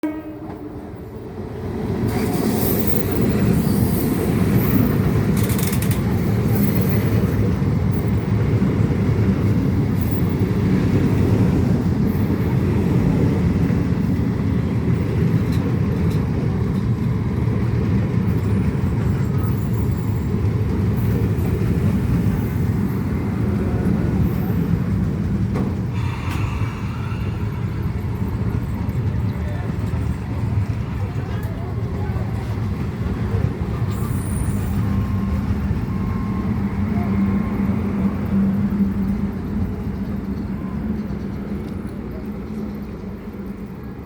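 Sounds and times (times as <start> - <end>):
train wheels rumbling: 0.0 - 44.0.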